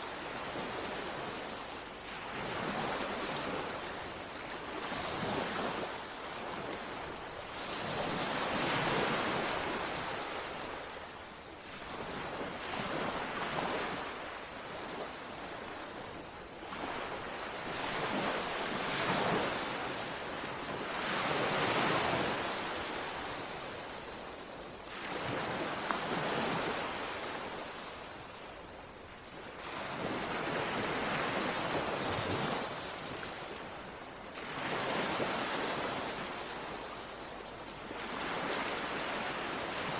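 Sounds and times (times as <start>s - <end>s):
sea waves breaking: 11.7s - 37.0s.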